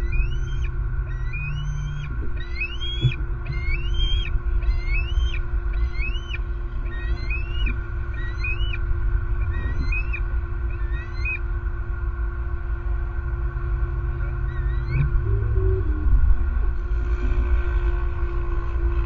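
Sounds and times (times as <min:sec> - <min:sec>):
bird whistling rising notes: 0:00.0 - 0:08.8, 0:09.4 - 0:11.4, 0:14.2 - 0:16.4
faint steady hum: 0:00.0 - 0:19.0
road traffic rumble: 0:00.0 - 0:19.0.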